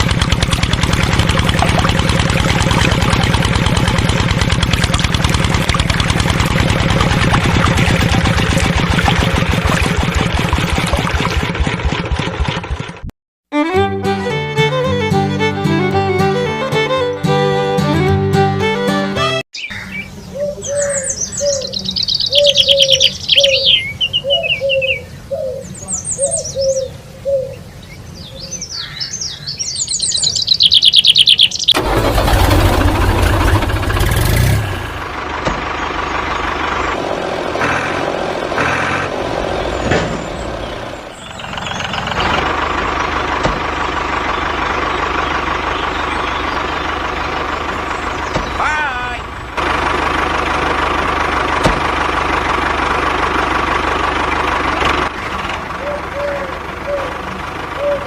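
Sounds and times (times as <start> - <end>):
small engine running: 0.0 - 13.1, 31.8 - 58.0
birds chirping: 19.6 - 31.8, 35.5 - 49.6, 55.6 - 58.0.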